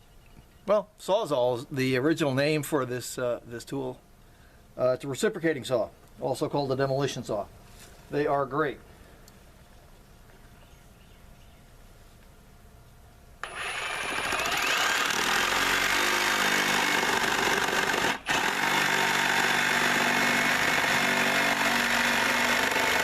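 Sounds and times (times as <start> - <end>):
reciprocating saw cutting wood: 13.4 - 23.0.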